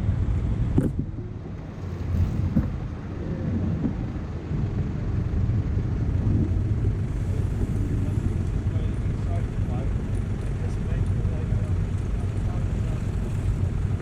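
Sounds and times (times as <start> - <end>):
wind noise on microphone: 0.0 - 10.4
road traffic rumble: 0.0 - 14.0.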